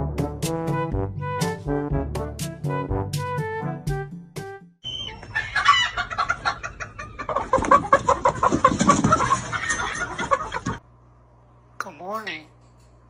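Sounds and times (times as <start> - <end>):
bird clucking: 4.8 - 10.7.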